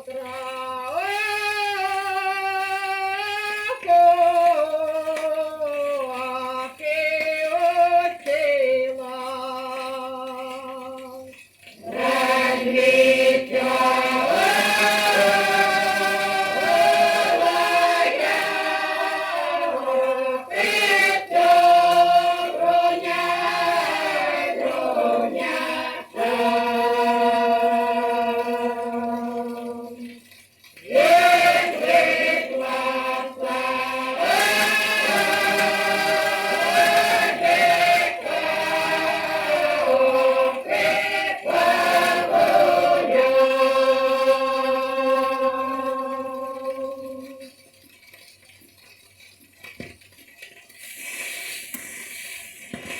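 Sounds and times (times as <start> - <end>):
choir singing sustained chords: 11.8 - 30.2, 30.8 - 47.4.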